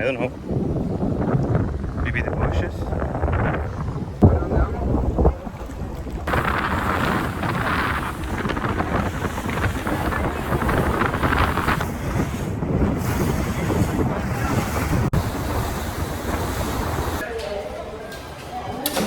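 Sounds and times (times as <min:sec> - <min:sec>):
wind buffeting microphone: 0:00.0 - 0:17.2
motorboat engine: 0:02.9 - 0:17.2
rushing water: 0:04.1 - 0:17.3.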